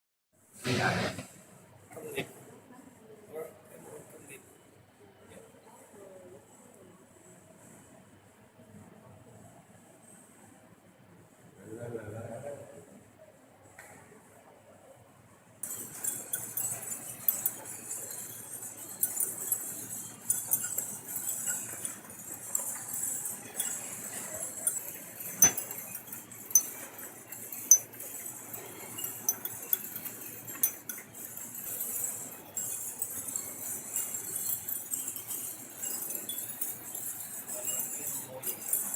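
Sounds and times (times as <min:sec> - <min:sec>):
swiftlets chirping and clicking: 0:15.6 - 0:38.9.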